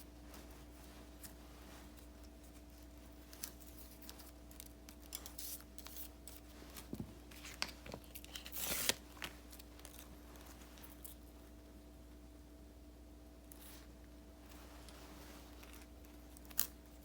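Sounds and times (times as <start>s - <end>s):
paper clicks and rustles: 1.1s - 11.2s.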